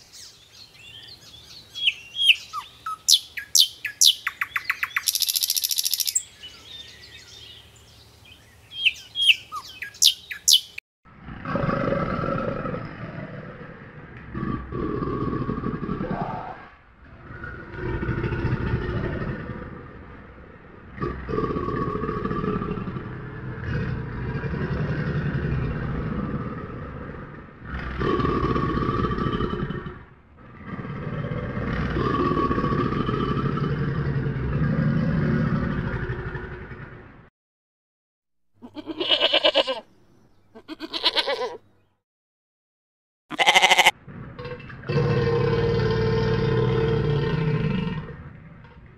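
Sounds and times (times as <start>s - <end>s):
crocodilian low rumbling growls: 11.1s - 37.3s, 44.0s - 48.9s
young goat bleating: 38.6s - 39.9s, 40.5s - 41.6s, 43.3s - 44.0s.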